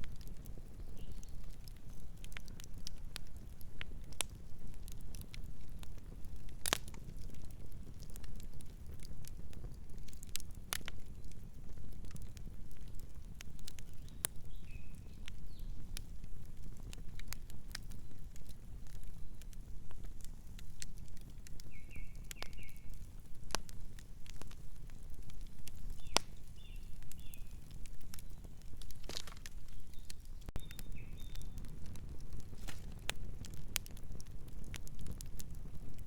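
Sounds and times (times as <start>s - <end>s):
low rumble of flames: 0.0s - 36.0s
wood crackling and popping: 0.0s - 36.0s.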